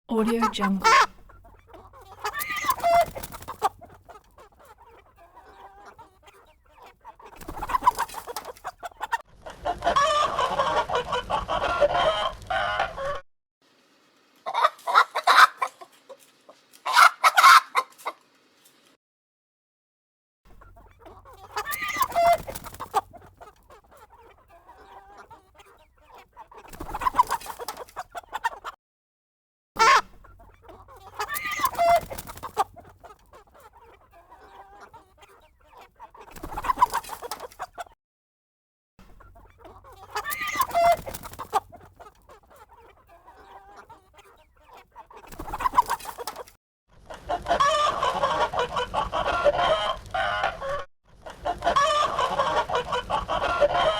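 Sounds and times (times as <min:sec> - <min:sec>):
chickens clucking: 0:00.1 - 0:13.2, 0:14.3 - 0:18.9, 0:20.5 - 0:28.8, 0:29.8 - 0:38.0, 0:39.0 - 0:53.9
chickens squawking: 0:00.1 - 0:13.2, 0:14.4 - 0:18.2, 0:20.5 - 0:28.8, 0:29.8 - 0:38.0, 0:39.2 - 0:46.5, 0:47.1 - 0:53.9
roosters crowing: 0:02.0 - 0:03.8, 0:09.7 - 0:13.2, 0:14.5 - 0:15.8, 0:16.8 - 0:17.9, 0:21.4 - 0:22.8, 0:31.1 - 0:32.6, 0:47.3 - 0:50.8, 0:51.5 - 0:53.9.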